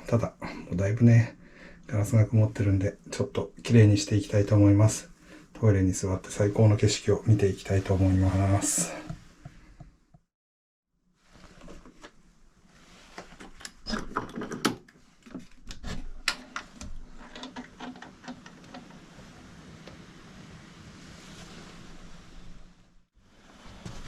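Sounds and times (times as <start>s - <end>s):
glass being wiped: 7.4s - 9.2s, 18.9s - 24.0s.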